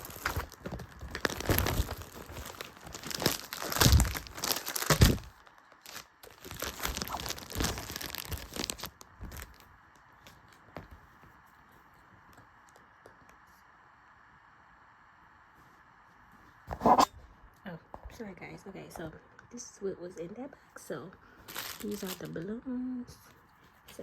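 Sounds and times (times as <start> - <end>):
packaging tearing and crinkling: 0.0 - 9.6, 21.4 - 22.4.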